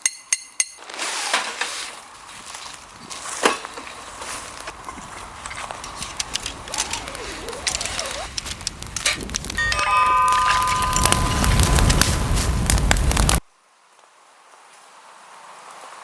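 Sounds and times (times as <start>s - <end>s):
campfire crackling: 1.6s - 13.4s
fire snap: 1.6s - 13.4s.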